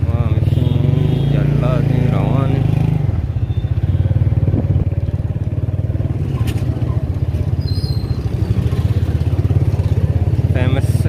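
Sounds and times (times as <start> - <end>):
small motorcycle engine running: 2.2 - 11.0.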